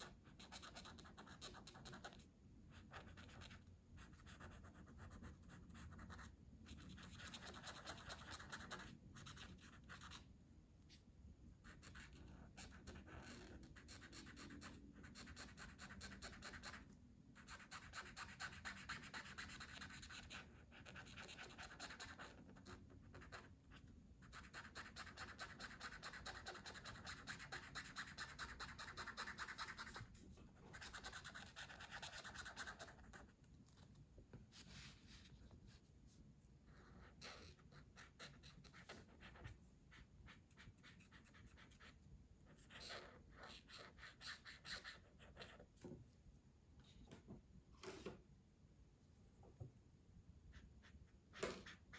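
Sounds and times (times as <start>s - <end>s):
colouring scratching on paper: 2.9s - 10.2s, 24.2s - 33.3s, 50.5s - 51.9s.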